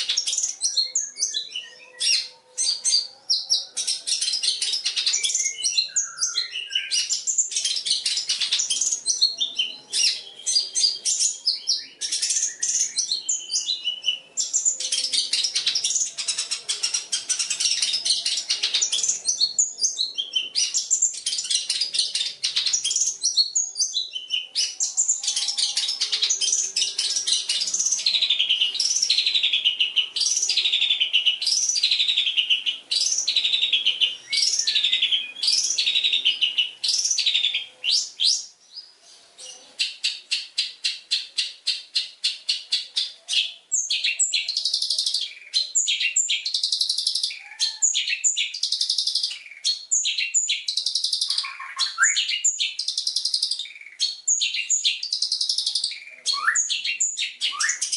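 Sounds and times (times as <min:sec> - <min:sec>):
shrike singing varied song: 0:00.0 - 0:57.9.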